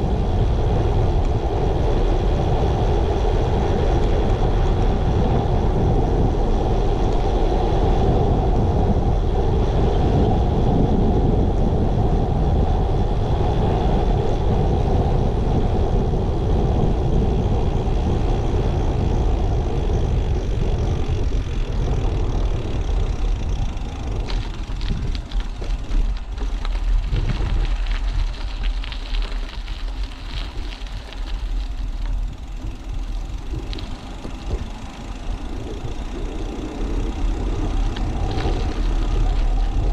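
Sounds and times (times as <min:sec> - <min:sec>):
tyre and road noise: 0:00.0 - 0:39.9
wind on microphone: 0:00.0 - 0:39.9
ticks and rattles: 0:22.0 - 0:39.9.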